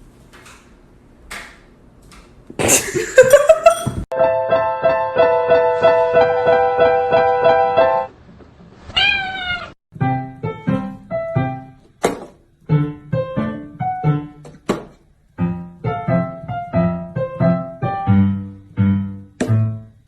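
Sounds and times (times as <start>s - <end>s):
piano music: 4.1s - 8.1s, 9.9s - 12.0s, 12.6s - 14.7s, 15.3s - 20.0s
cat meowing: 8.9s - 9.8s.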